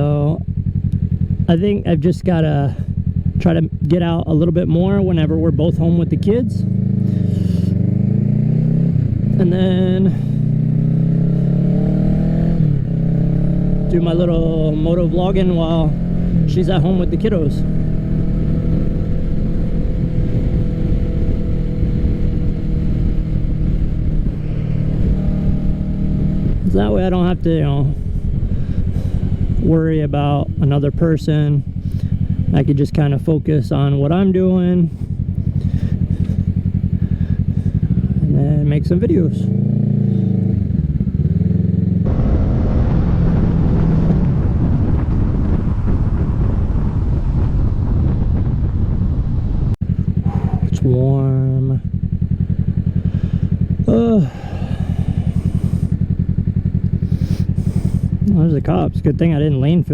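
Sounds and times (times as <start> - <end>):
motorcycle engine cruising: 0.0 - 59.9
wind on microphone: 11.7 - 30.6, 39.5 - 50.8.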